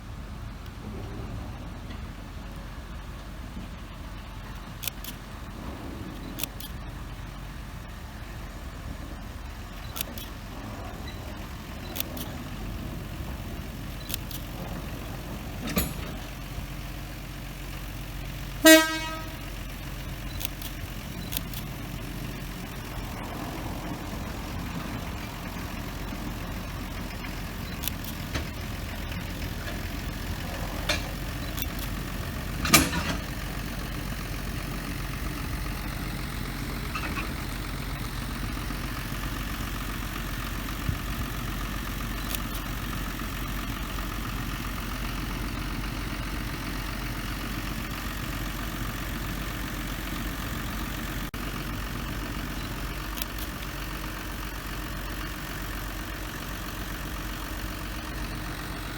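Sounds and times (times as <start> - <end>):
train engine humming: 0.0 - 58.9
train horn toot: 18.6 - 19.5
sharp metal clanks: 32.6 - 33.4.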